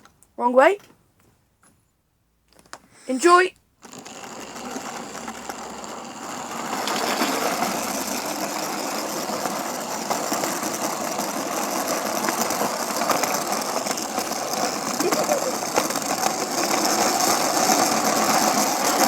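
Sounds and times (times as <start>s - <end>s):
model train running on track: 3.9s - 19.0s.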